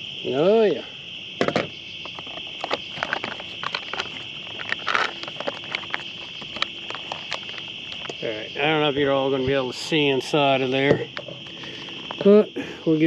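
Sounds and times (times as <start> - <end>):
night insects trilling: 0.0 - 13.0
sharp clicks and crackles: 1.4 - 8.2
rustling: 2.0 - 8.3.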